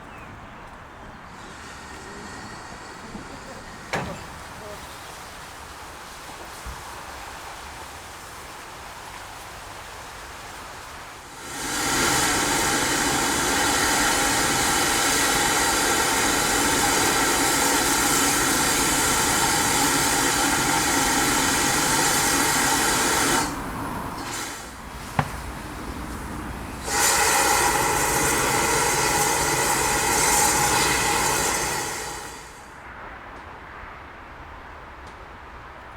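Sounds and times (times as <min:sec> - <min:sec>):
steam hissing from locomotive: 0:01.3 - 0:07.8, 0:11.2 - 0:32.8.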